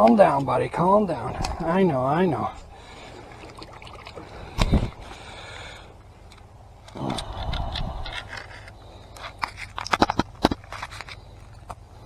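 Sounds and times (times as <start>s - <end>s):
sharp clicks and scrapes: 6.3s - 11.8s.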